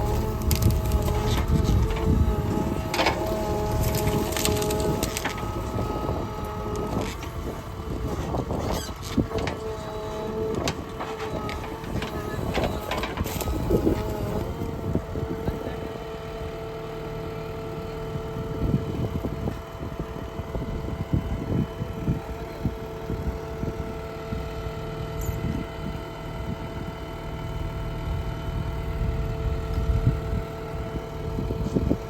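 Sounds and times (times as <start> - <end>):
low rumbling and thumps: 0.0 - 15.7
diesel engine running with whine: 0.0 - 32.0.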